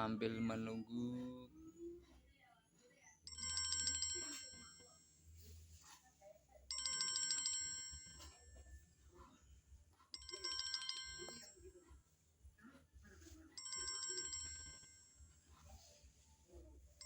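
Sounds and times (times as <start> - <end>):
phone ringtone trilling: 3.3 - 5.7, 6.7 - 8.8, 10.2 - 11.8, 13.2 - 16.2.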